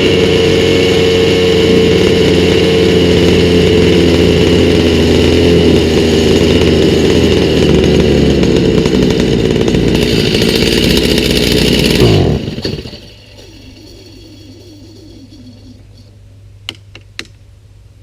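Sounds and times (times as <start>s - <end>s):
chainsaw engine running: 0.0s - 16.1s.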